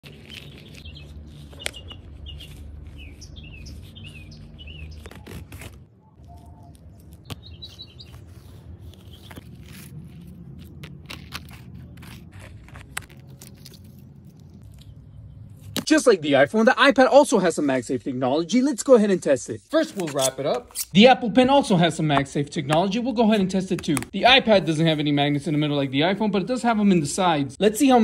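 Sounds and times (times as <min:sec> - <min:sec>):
birds chirping: 0:00.0 - 0:09.8
low steady rumble: 0:08.5 - 0:15.8.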